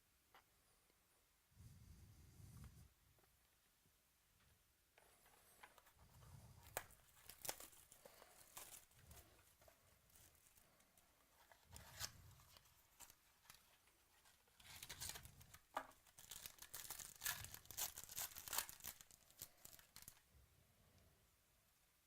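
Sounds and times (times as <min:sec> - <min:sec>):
wrapper tearing and crinkling: 0:06.6 - 0:09.3, 0:14.5 - 0:20.2.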